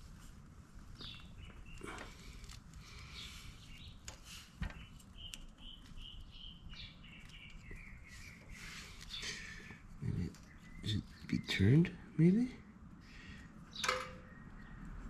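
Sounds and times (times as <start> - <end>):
small bird chirping: 1.0 - 11.9.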